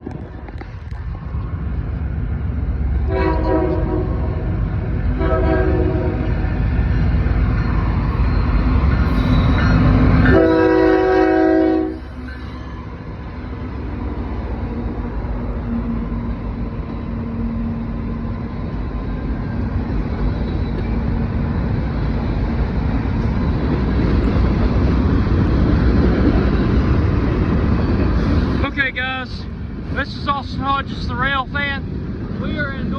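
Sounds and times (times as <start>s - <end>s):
locomotive air horn blasts: 3.1s - 4.4s, 5.2s - 6.2s, 10.2s - 12.2s.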